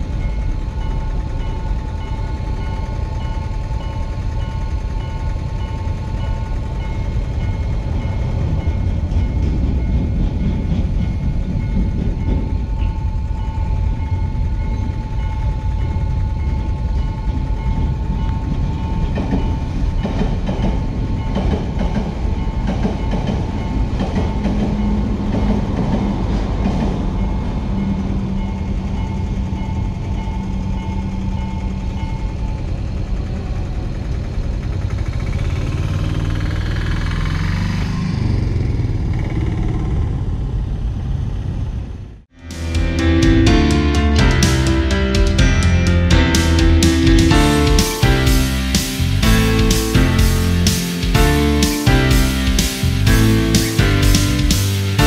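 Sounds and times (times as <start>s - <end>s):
train wheels clattering over rail joints: 17.4s - 30.3s
level crossing warning tone: 42.4s - 55.0s.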